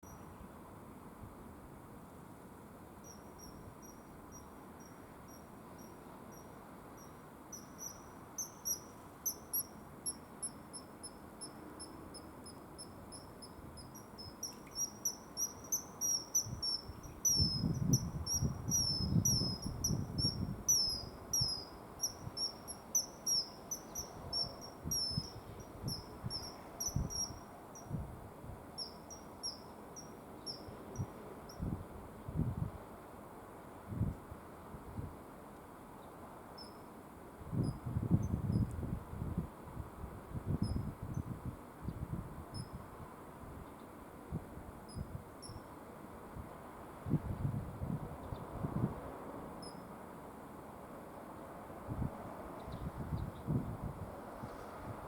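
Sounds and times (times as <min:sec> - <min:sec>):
kingfisher high chirping calls: 0:14.0 - 0:27.4.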